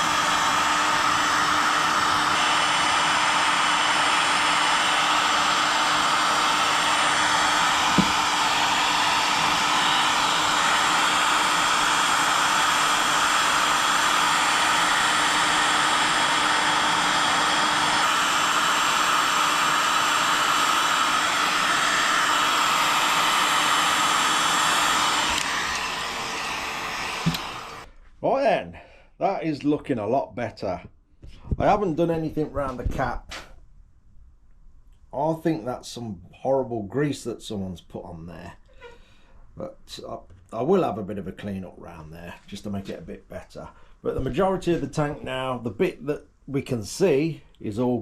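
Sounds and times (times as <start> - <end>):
heat gun blowing: 0.0 - 27.9, 38.6 - 39.1.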